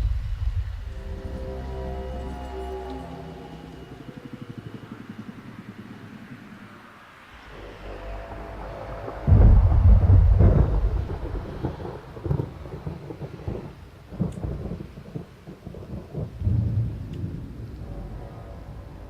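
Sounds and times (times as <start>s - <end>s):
deep boom rolling into rumble: 7.5s - 19.0s.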